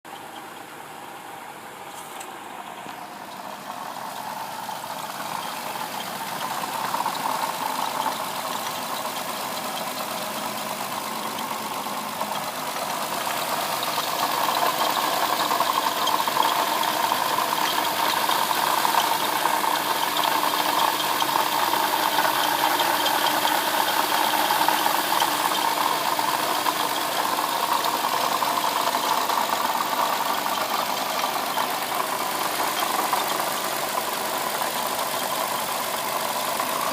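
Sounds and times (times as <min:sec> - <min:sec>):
car engine idling: 0:00.0 - 0:36.9
engine rattling and squeaking: 0:00.0 - 0:36.9.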